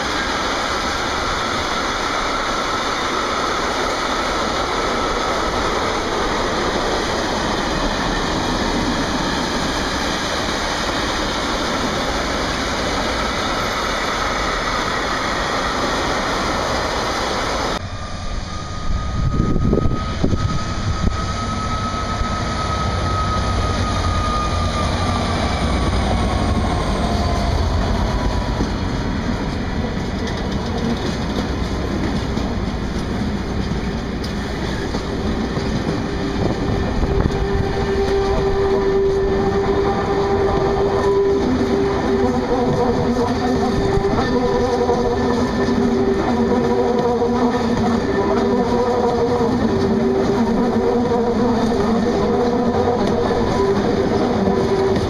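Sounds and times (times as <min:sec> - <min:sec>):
freight train rolling on rails: 0:00.0 - 0:55.0.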